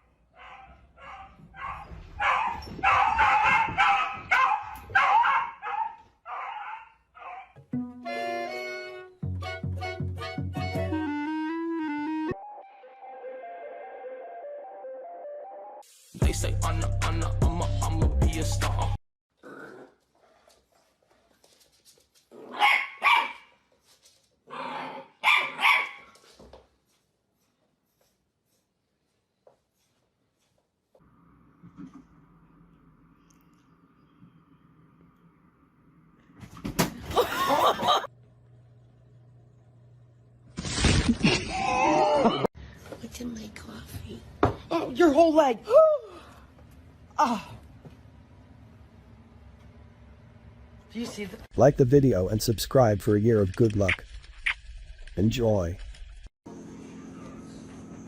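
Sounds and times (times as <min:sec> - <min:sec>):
dog barking: 0:00.4 - 0:07.6, 0:22.5 - 0:23.5, 0:24.9 - 0:26.1.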